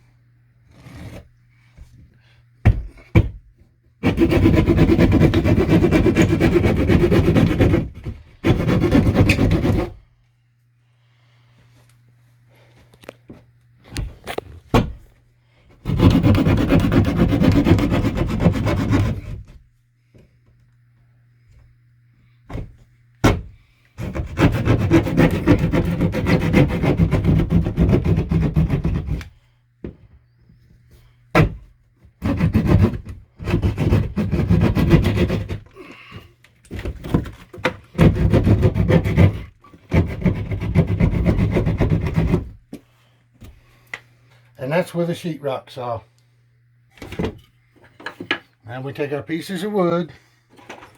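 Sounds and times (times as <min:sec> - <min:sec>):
hand saw rasping through drywall: 0:00.7 - 0:01.3, 0:04.0 - 0:10.1, 0:15.8 - 0:19.7, 0:23.2 - 0:29.4, 0:31.4 - 0:36.0, 0:36.8 - 0:42.6.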